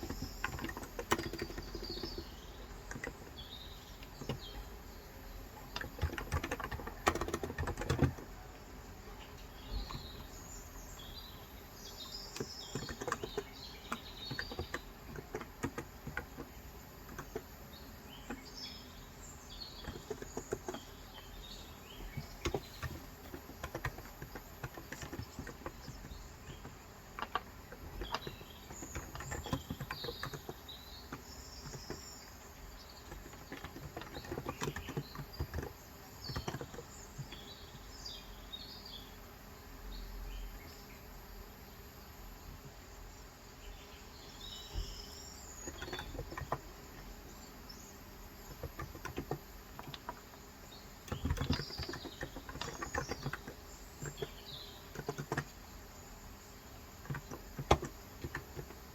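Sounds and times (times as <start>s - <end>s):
keyboard typing: 0.0s - 3.3s, 5.7s - 8.5s, 12.3s - 17.6s, 19.8s - 32.3s, 33.1s - 37.4s, 51.0s - 55.6s, 57.0s - 58.9s
birds chirping: 0.0s - 58.9s.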